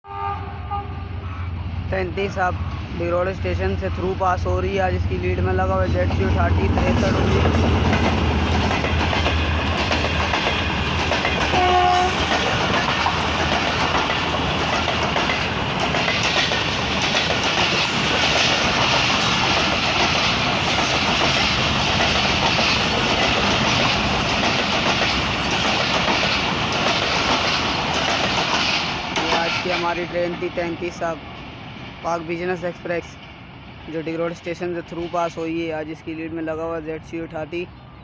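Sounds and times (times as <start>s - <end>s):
train horn blast: 0.0s - 1.5s, 11.5s - 12.3s
train wheels clattering on rails: 5.0s - 33.6s.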